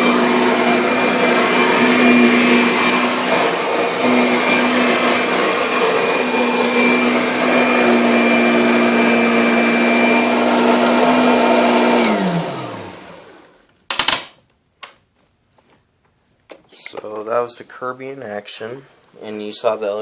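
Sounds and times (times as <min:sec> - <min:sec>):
vacuum cleaner running: 0:00.0 - 0:13.6.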